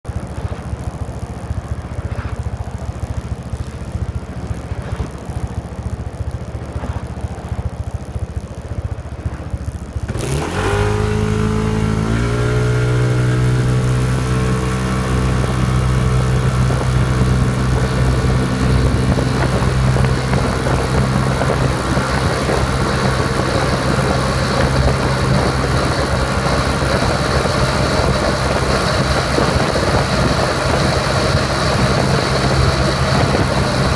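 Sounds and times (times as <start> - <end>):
scooter engine idling and revving: 0.0 - 33.9
wind rushing: 10.1 - 33.9.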